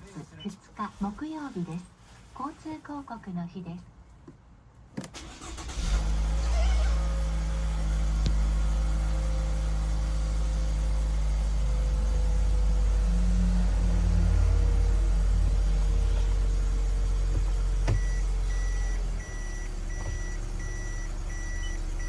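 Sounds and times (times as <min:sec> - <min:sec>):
car engine starting and idling: 0:04.9 - 0:22.0
ignition click: 0:07.8 - 0:09.2, 0:14.6 - 0:22.0.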